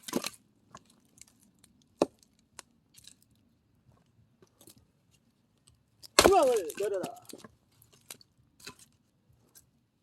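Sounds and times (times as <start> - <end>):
faint clatter of wood: 0.0 - 9.7
axe chopping log: 6.1 - 7.2.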